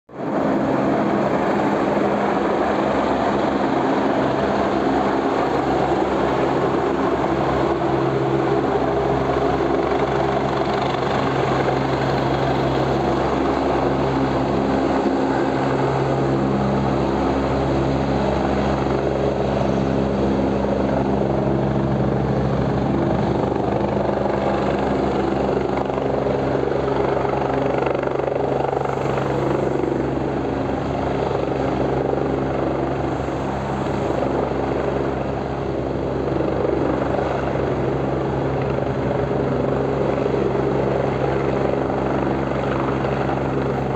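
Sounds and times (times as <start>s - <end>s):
helicopter engine and rotor: 0.1s - 43.9s.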